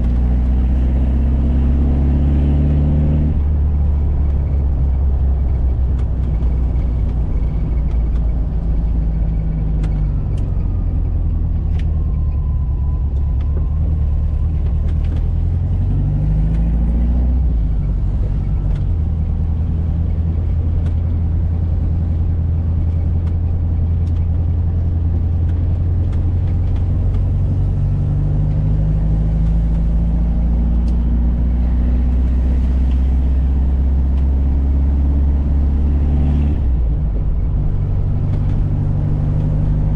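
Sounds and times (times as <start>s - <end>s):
car engine running on road: 0.0s - 39.9s.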